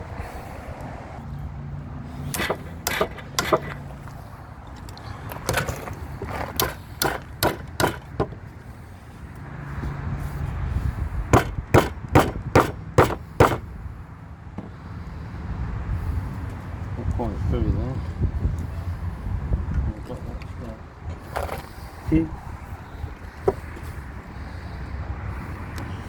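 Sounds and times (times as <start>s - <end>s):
chisel struck cutting wood: 2.3s - 3.8s, 6.4s - 8.4s, 11.3s - 13.7s.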